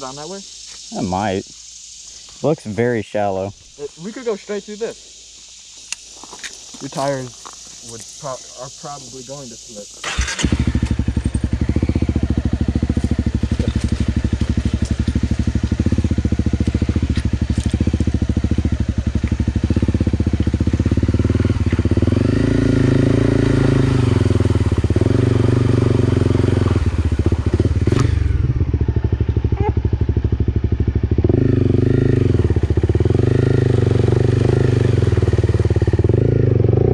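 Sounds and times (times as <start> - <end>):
motorcycle engine revving: 9.9 - 36.9
motorcycle pushing through water: 10.0 - 28.1.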